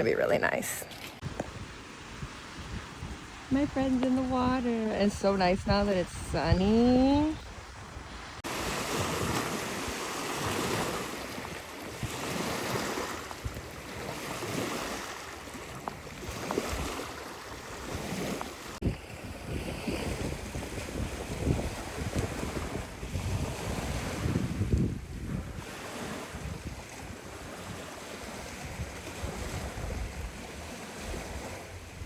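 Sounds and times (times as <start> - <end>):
water lapping and sloshing: 0.8 - 32.0
wind buffeting microphone: 1.2 - 32.0.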